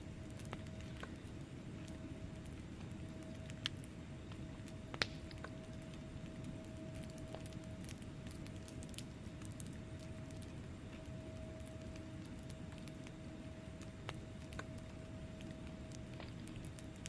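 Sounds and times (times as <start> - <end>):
faint steady hum: 0.0 - 17.0
fire crackling and popping: 0.0 - 17.0
fire flames rumbling: 0.0 - 17.0.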